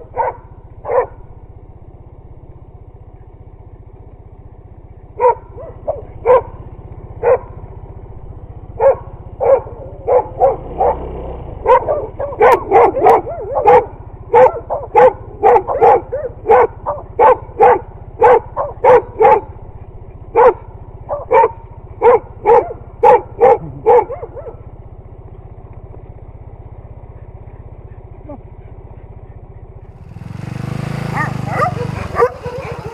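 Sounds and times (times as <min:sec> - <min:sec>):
dog barking: 0:00.0 - 0:01.3, 0:05.2 - 0:07.7, 0:08.7 - 0:19.6, 0:20.3 - 0:24.7, 0:27.0 - 0:29.8, 0:31.1 - 0:32.9
motorcycle engine humming: 0:00.0 - 0:32.9.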